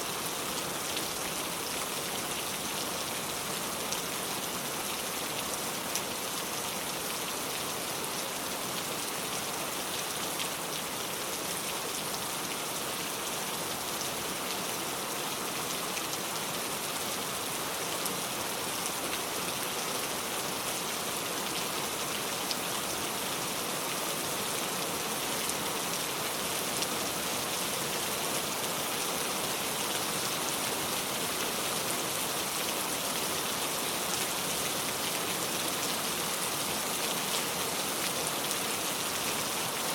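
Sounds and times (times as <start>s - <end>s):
rain falling on a car: 0.2s - 39.9s.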